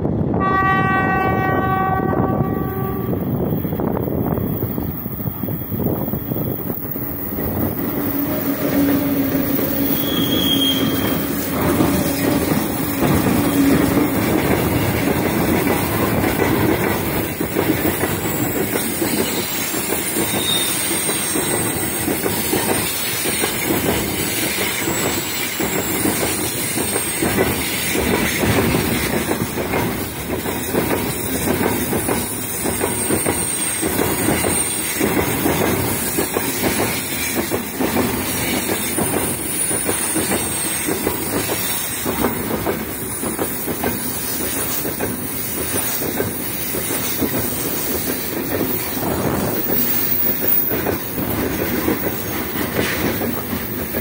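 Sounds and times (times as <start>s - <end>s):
train wheels clickety-clack: 0.0s - 54.0s
locomotive horn: 0.4s - 3.4s
high wheel squeals: 5.2s - 14.2s, 18.1s - 22.1s, 32.8s - 35.0s, 38.7s - 42.0s, 48.6s - 50.8s.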